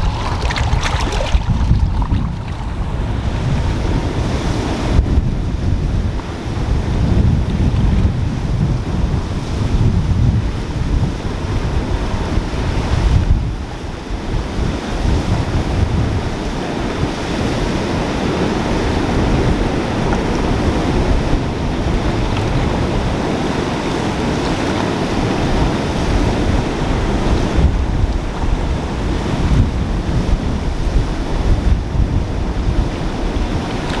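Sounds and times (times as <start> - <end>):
flooded creek rushing: 0.0 - 4.7
wind buffeting microphone: 0.0 - 34.0.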